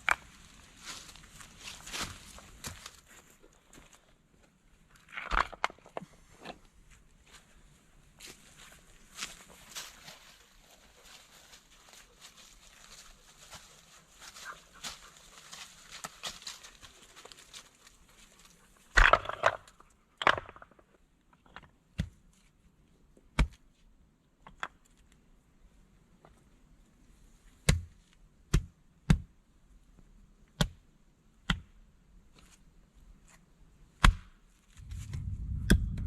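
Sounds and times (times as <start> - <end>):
rustling and crackling: 0.0 - 19.9, 34.6 - 36.0
chopping wood: 23.4 - 23.6, 27.6 - 29.3, 31.4 - 31.8, 34.0 - 34.4.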